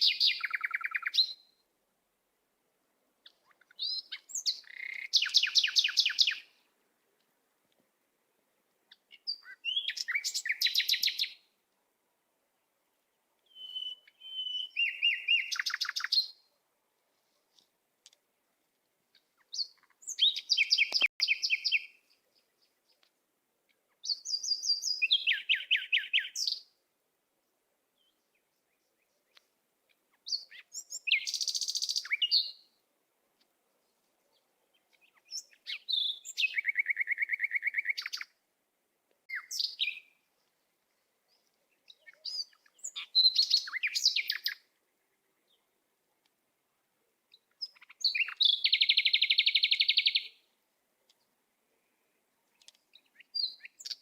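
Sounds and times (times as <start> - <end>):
songbird trilling and chirping: 0.0 - 1.6, 3.2 - 6.6, 8.9 - 11.5, 13.4 - 16.5, 19.1 - 23.1, 23.7 - 26.7, 28.0 - 32.8, 34.3 - 38.4, 39.3 - 40.6, 41.2 - 45.8, 47.3 - 50.5, 52.5 - 54.0.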